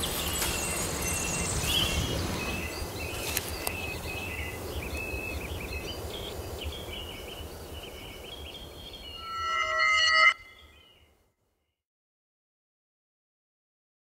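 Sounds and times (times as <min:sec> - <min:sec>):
birds chirping: 0:00.0 - 0:11.1.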